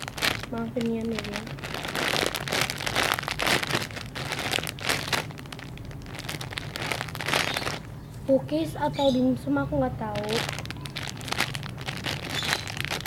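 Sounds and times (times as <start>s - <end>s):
plastic packaging crinkling: 0.0s - 8.0s, 10.0s - 13.0s.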